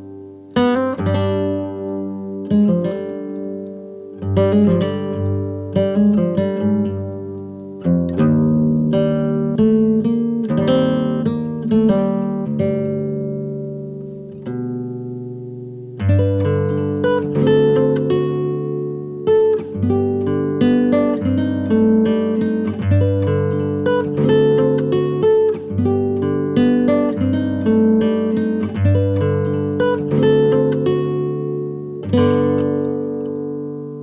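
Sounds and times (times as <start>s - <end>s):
acoustic guitar picking: 0.0s - 34.0s.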